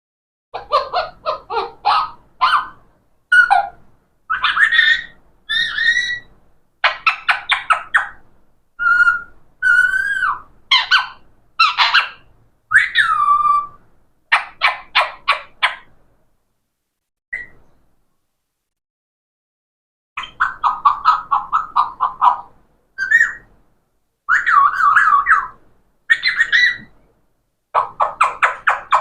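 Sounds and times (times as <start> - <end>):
parrot squawking: 0.6 - 8.2, 8.8 - 15.9, 20.2 - 23.5, 24.3 - 26.9, 27.7 - 29.0
parrot whistling sliding notes: 8.8 - 11.0, 12.7 - 13.8, 23.0 - 23.5.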